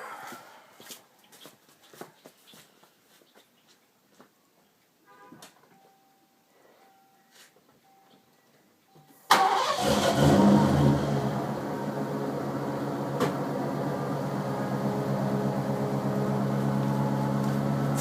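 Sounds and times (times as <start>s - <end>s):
car engine starting and idling: 9.3s - 18.0s.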